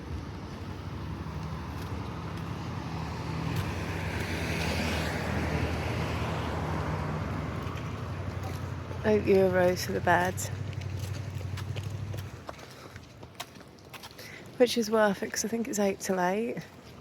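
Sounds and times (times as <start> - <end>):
vehicle driving past: 0.0 - 12.6.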